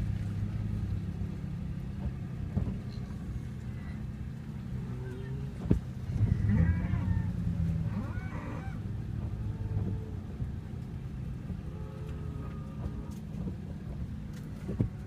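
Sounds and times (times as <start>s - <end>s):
vehicle engine idling: 0.0s - 15.0s
cattle lowing: 4.6s - 10.3s.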